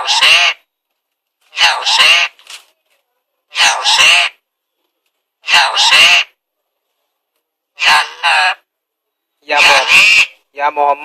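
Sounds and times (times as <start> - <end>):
parrot talking loudly: 0.0 - 0.6, 1.5 - 2.4, 3.5 - 4.4, 5.4 - 6.4, 7.8 - 8.7, 9.5 - 10.4.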